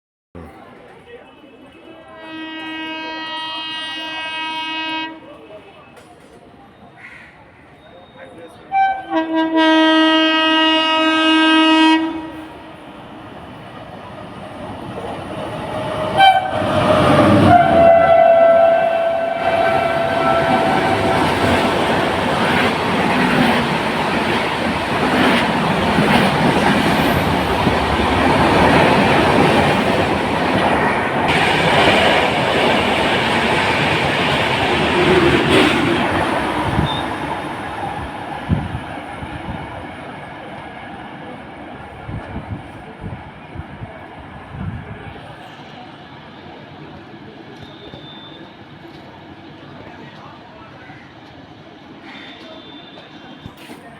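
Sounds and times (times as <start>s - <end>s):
train horn blast: 2.0s - 5.3s, 8.7s - 12.7s, 16.1s - 22.1s.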